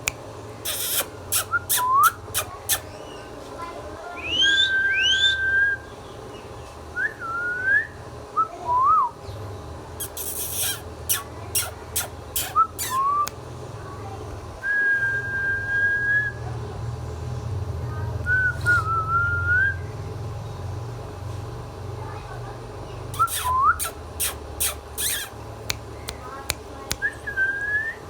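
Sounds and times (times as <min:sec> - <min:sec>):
parrot whistling: 0:00.6 - 0:03.2, 0:04.2 - 0:05.9, 0:10.0 - 0:13.4, 0:23.2 - 0:26.2.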